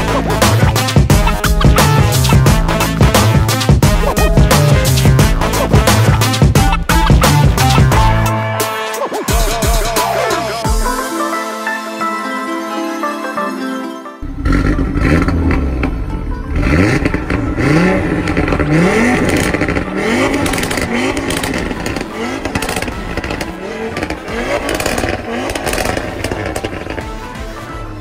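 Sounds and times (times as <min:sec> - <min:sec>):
electronic music: 0:00.0 - 0:28.0
car engine revving hard: 0:14.2 - 0:27.1.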